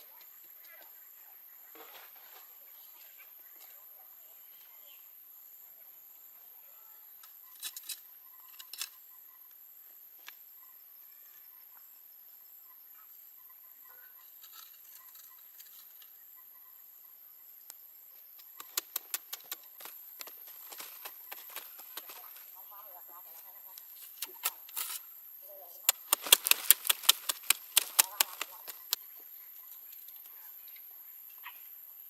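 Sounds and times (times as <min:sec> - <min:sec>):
sharp clicks and taps: 0:18.5 - 0:20.4, 0:25.9 - 0:29.0.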